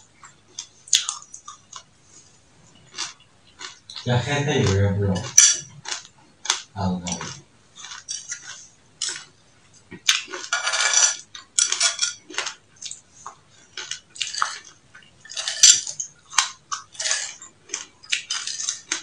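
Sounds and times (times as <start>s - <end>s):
crunchy chewing: 0.1s - 19.0s
metal spoon clinking on plate: 10.5s - 12.2s, 15.3s - 16.1s.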